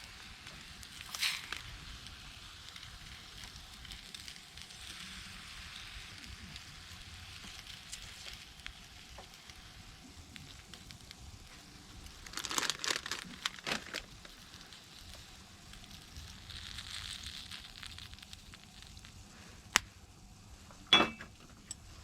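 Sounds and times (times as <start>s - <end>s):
quiet crackling: 0.0s - 22.0s
crinkling rustle: 10.3s - 19.3s.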